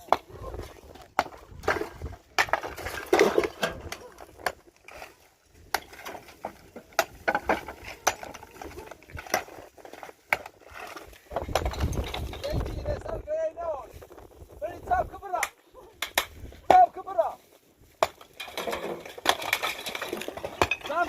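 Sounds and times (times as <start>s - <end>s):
irregular knocks and clatters: 5.7s - 13.2s, 18.0s - 21.0s.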